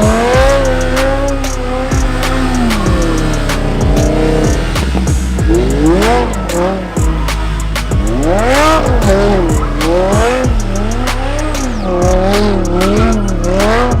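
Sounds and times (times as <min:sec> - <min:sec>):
car engine revving: 0:00.0 - 0:14.0
music with heavy bass beat: 0:00.0 - 0:14.0
tire squeal: 0:00.0 - 0:14.0.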